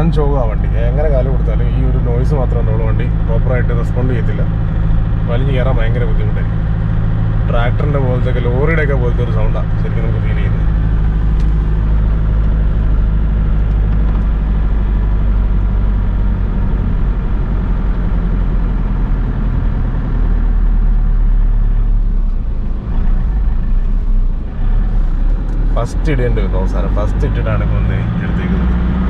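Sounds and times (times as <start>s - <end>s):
diesel engine labouring uphill: 0.0s - 29.0s.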